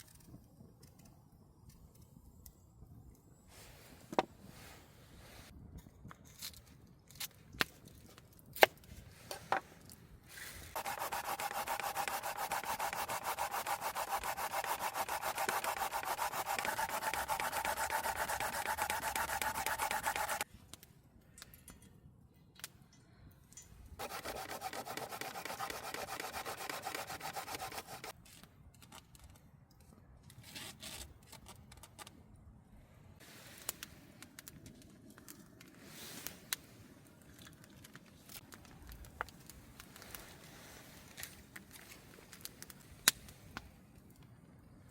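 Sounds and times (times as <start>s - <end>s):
radish grating on metal grater: 10.8s - 20.4s, 24.0s - 28.1s.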